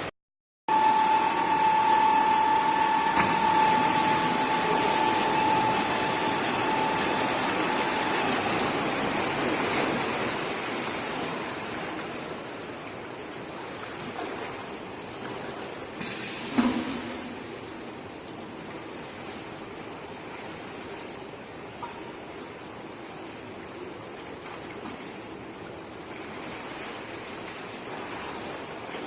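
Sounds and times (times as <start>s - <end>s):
steady mechanical whine: 0.7s - 11.6s
rushing water noise: 0.7s - 29.0s.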